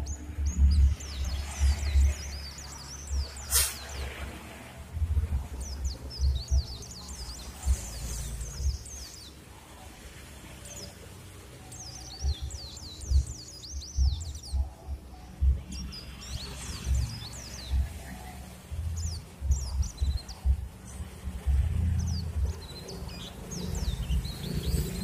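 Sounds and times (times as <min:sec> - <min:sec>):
small birds twittering: 0:00.0 - 0:25.0
low thumps: 0:00.4 - 0:02.4, 0:04.9 - 0:09.0, 0:12.2 - 0:16.0, 0:16.7 - 0:18.0, 0:18.7 - 0:22.8.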